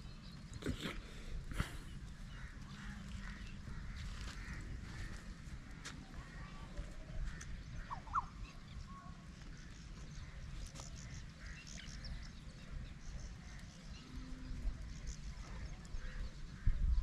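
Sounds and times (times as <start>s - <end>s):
short bird calls: 7.8s - 8.4s.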